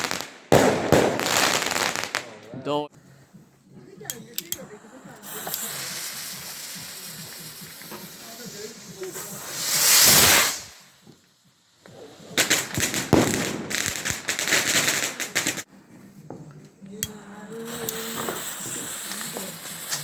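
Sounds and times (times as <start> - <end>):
firework bang: 0.0 - 2.4, 5.2 - 10.8, 12.0 - 15.7
firework crackling: 0.0 - 2.5, 3.9 - 15.7, 17.0 - 20.0.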